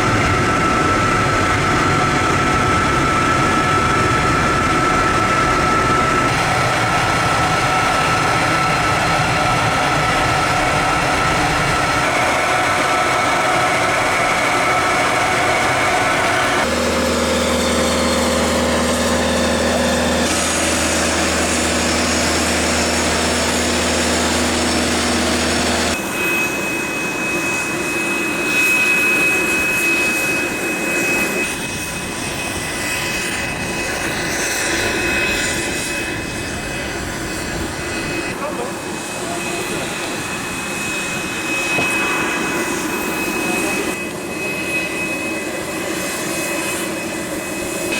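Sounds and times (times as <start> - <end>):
jet engine whine: 0.0 - 47.9.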